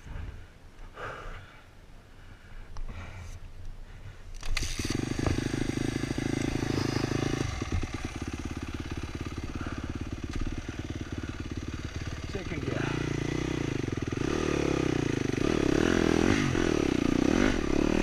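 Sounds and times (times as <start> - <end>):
dirt bike engine idling: 3.8 - 18.0.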